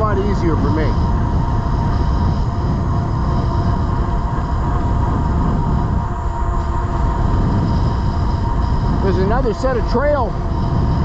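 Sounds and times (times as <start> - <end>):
faint steady whine: 0.0 - 11.0
wind noise on microphone: 0.0 - 11.0.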